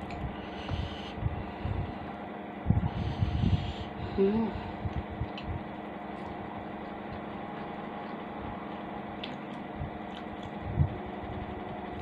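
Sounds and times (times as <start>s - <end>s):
steady mechanical hum: 0.0s - 12.0s
person chewing noodles: 9.2s - 10.6s.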